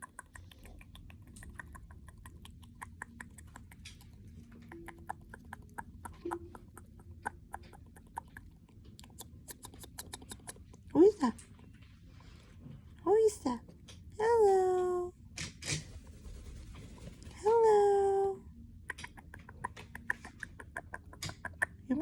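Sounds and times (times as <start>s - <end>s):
bird beak tapping and nibbling: 0.0s - 11.9s, 15.4s - 17.5s, 18.8s - 22.0s.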